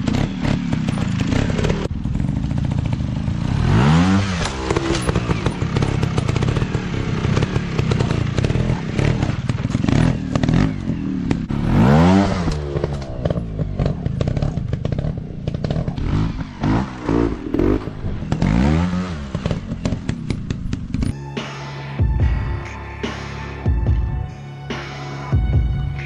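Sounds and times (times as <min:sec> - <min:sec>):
dirt bike engine revving: 0:00.0 - 0:23.7
clattering and scraping over rough ground: 0:04.4 - 0:21.2.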